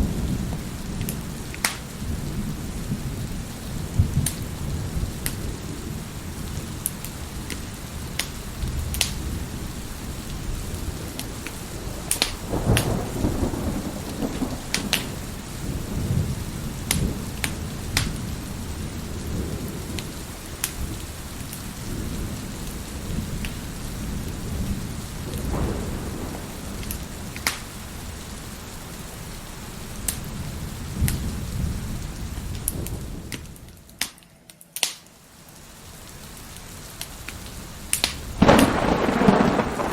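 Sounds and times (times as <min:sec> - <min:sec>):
heavy rain: 0:00.0 - 0:39.9
wood fire crackling and popping: 0:01.0 - 0:02.0, 0:04.1 - 0:04.4, 0:05.2 - 0:05.4, 0:06.8 - 0:09.3, 0:11.1 - 0:13.0, 0:14.1 - 0:15.2, 0:16.8 - 0:18.2, 0:26.8 - 0:27.8, 0:32.5 - 0:35.7, 0:36.3 - 0:39.9
thunder rolling: 0:08.6 - 0:20.0, 0:24.0 - 0:28.3, 0:38.4 - 0:39.9.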